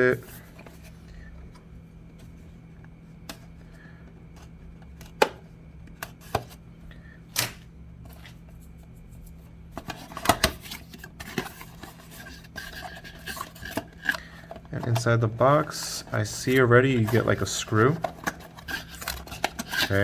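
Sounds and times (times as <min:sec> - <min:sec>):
steady low hum: 0:00.0 - 0:20.0
packaging clicks and crinkles: 0:16.2 - 0:20.0.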